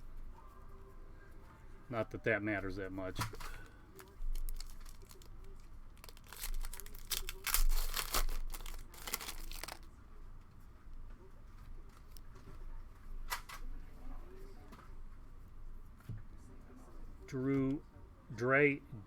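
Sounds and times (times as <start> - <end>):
foil pack ripping and rustling: 3.4 - 5.4, 6.0 - 9.9.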